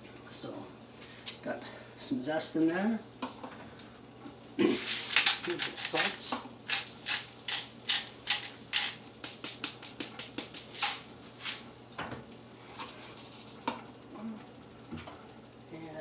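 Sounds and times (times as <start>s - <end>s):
salt shaker taps and clicks: 5.2s - 11.6s.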